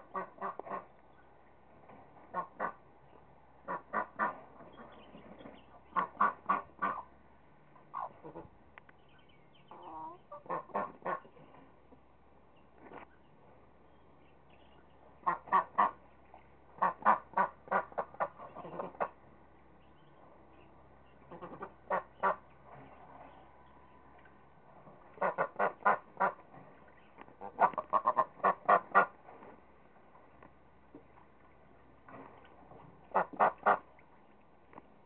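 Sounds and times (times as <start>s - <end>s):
ducks quacking: 0.0s - 0.9s, 2.3s - 2.8s, 3.6s - 7.1s, 7.8s - 8.5s, 9.7s - 11.6s, 15.2s - 16.1s, 16.7s - 19.2s, 21.2s - 22.9s, 25.1s - 26.6s, 27.4s - 29.2s, 33.1s - 33.9s.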